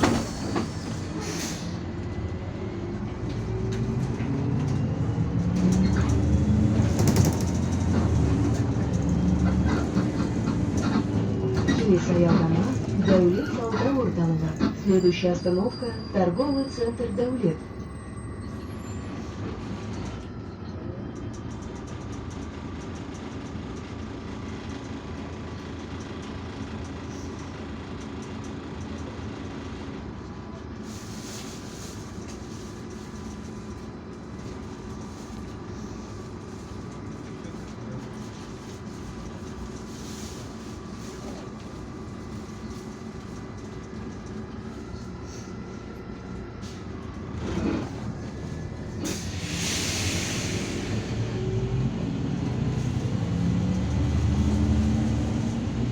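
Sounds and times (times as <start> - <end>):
bus engine and road drone: 0.0 - 55.9.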